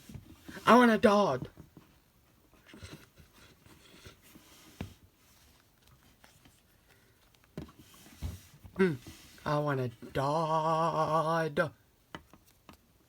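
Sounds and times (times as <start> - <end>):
faint taps and rustles: 1.4 - 9.4.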